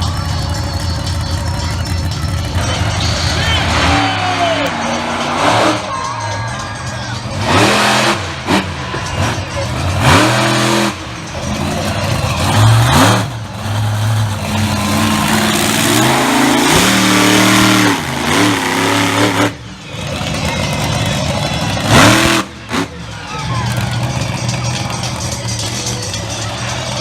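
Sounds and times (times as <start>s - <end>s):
truck engine revving: 0.0s - 27.0s.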